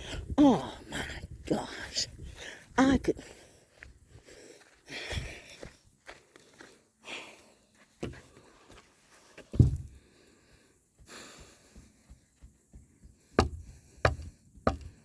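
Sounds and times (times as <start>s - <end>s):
person breathing: 0.0s - 1.3s, 2.0s - 15.0s
footsteps thudding: 9.4s - 10.0s, 11.0s - 14.9s.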